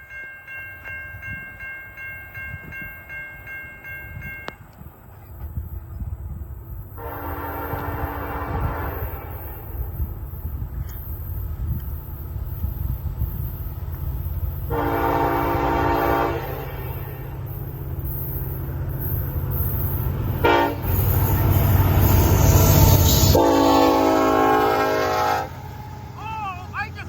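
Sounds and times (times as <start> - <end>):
train air horn: 7.0 - 9.9, 14.6 - 17.2, 20.4 - 25.8
diesel engine rumbling: 9.7 - 27.0.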